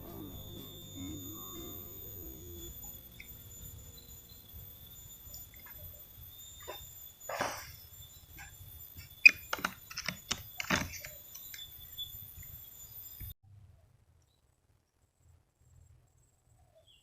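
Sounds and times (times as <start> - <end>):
faint low rumble: 0.0 - 6.5.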